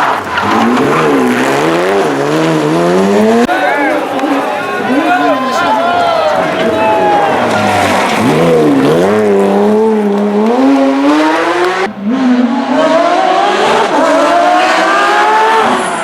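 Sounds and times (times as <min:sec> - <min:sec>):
race car engine accelerating hard: 0:00.0 - 0:16.0.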